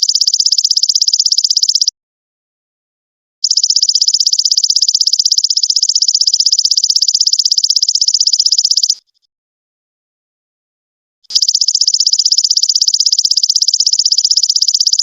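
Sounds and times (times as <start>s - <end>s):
insect high-pitched pulsing trill: 0.0s - 1.9s, 3.4s - 9.1s, 11.3s - 15.0s.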